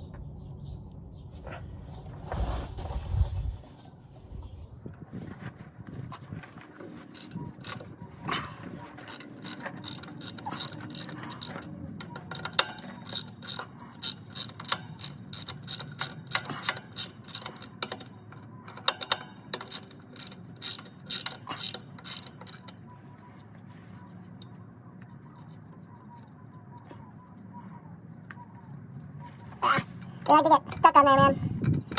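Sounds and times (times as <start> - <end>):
ratchet wrench clicking: 7.0 - 22.8.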